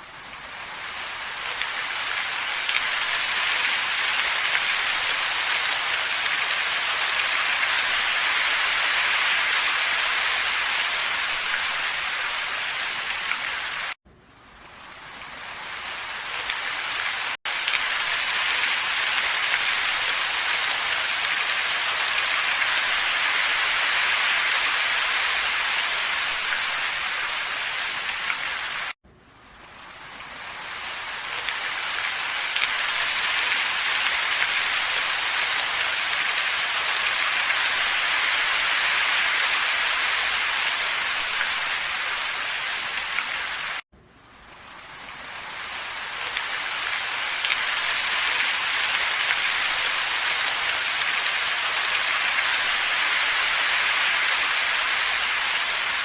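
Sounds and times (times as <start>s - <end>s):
steady ambience hiss: 14.1s - 17.0s, 29.0s - 40.4s, 44.0s - 56.0s.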